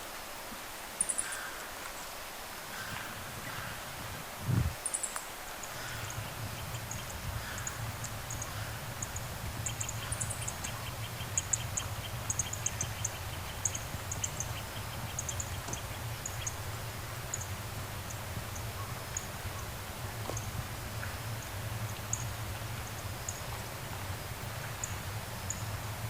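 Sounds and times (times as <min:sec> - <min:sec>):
steady low rumble: 0:02.8 - 0:04.8, 0:05.7 - 0:26.0
small birds chirping: 0:04.4 - 0:23.6.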